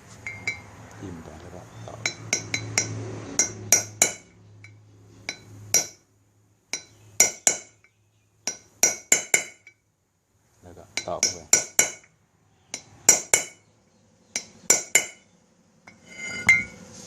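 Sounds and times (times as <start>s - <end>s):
hammer tapping metal punch: 2.0s - 6.0s, 6.7s - 9.8s, 11.0s - 12.1s, 12.7s - 13.7s, 14.3s - 15.3s.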